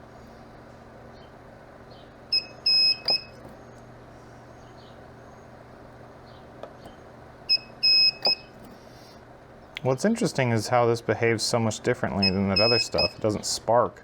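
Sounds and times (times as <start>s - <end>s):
spot welder beeping: 1.8s - 4.0s, 6.8s - 8.7s, 12.1s - 13.4s.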